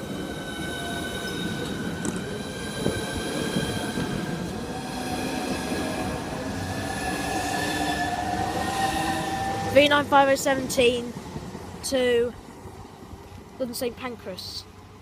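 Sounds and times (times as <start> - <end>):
electric train whine: 0.0 - 11.8
train rumble: 0.0 - 15.0.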